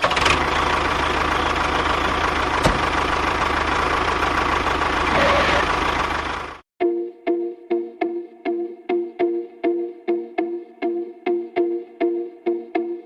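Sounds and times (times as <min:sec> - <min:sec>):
engine idling: 0:00.0 - 0:06.6.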